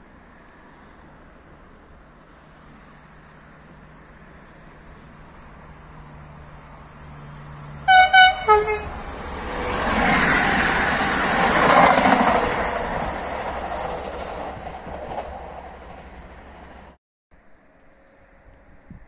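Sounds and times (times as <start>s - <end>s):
train rushing past: 3.1s - 17.0s
two-tone train horn: 7.8s - 9.1s.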